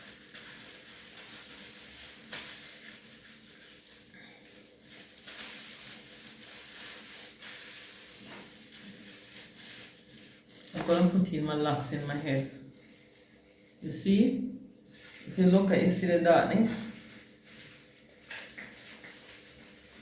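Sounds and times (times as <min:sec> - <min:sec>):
hands rustling through hair: 0:00.1 - 0:20.0.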